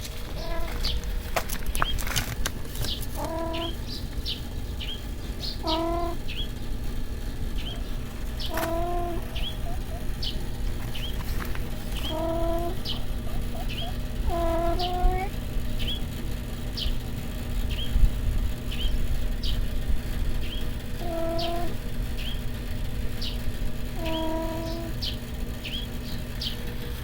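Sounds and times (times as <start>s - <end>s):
animal calling: 0.0s - 2.0s, 2.8s - 6.6s, 7.3s - 16.1s, 20.4s - 22.5s, 23.2s - 27.0s
small birds chirping: 0.0s - 27.0s.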